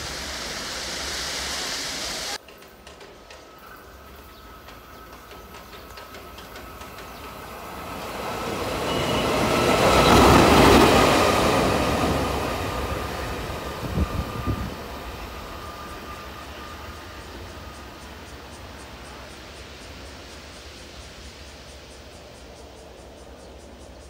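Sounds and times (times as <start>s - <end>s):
electric locomotive passing by: 0.0s - 24.0s
train wheel knocks: 2.4s - 3.8s, 4.5s - 7.6s.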